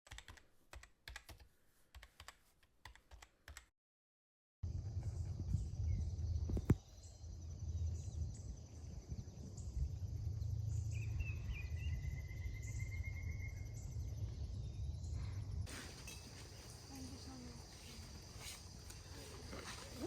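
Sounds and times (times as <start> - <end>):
low rumble: 4.6 - 15.7
crickets chirping: 4.7 - 20.0.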